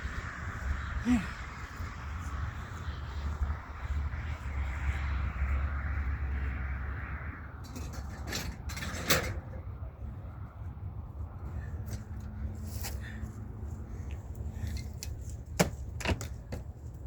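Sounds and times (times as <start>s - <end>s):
scrap metal clanking and scraping: 7.6s - 9.6s.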